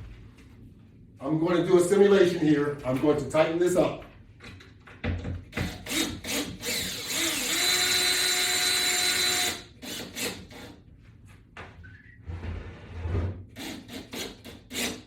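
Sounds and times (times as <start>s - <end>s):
power drill-driver whining: 5.9s - 10.7s.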